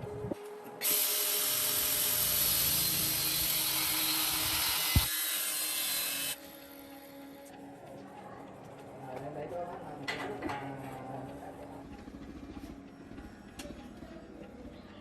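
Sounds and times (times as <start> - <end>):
power tool hissing whir: 0.8 - 7.5.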